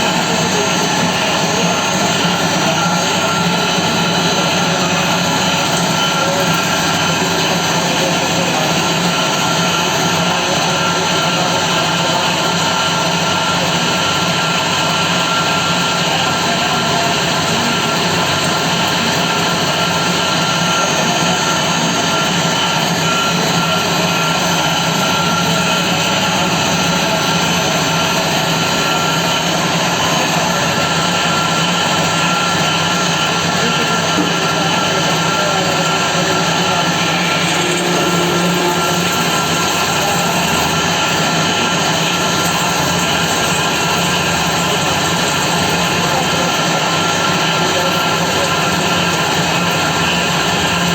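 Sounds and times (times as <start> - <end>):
cnc machine running: 0.0 - 50.9
constant mechanical tones: 0.0 - 50.9.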